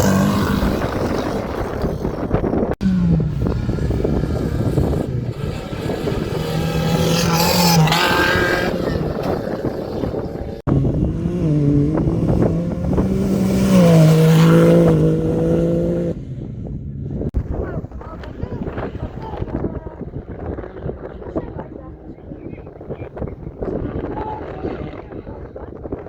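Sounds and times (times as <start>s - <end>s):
motorcycle engine revving: 0.0s - 17.4s
wind and terrain noise: 0.0s - 26.0s.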